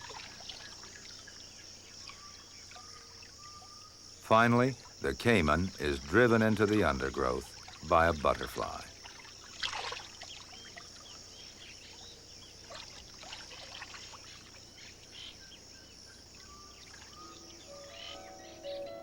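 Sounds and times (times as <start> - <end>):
high-pitched insect drone: 15.2 - 19.0.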